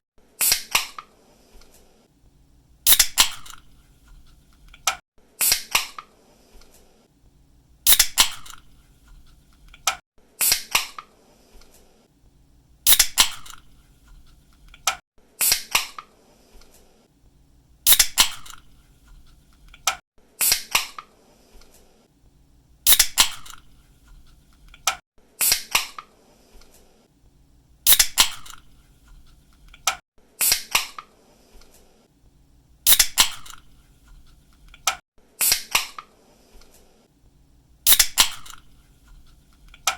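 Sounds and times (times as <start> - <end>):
can opening snap and hiss: 2.9 - 5.6, 7.9 - 10.0, 12.9 - 15.0, 17.8 - 18.7, 22.9 - 23.7, 27.9 - 30.0, 32.9 - 35.0, 37.8 - 39.9.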